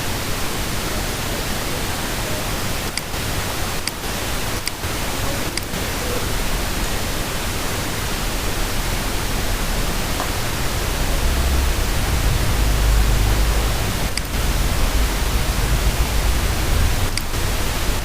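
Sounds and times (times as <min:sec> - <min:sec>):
broadband background hiss: 0:00.0 - 0:18.0
low rumble: 0:09.4 - 0:18.0.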